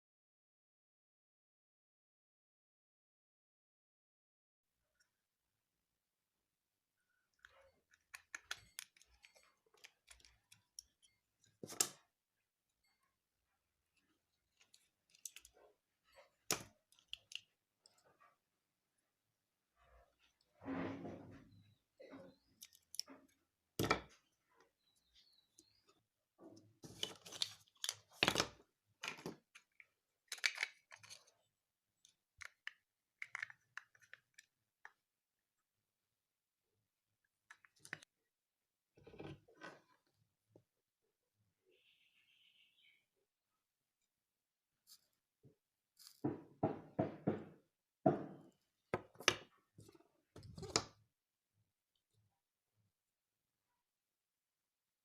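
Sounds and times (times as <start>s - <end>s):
plastic parts clicking and scraping: 7.3s - 12.0s, 14.0s - 18.1s, 22.0s - 24.1s, 26.8s - 35.0s
knocks on a hard surface: 46.3s - 48.4s.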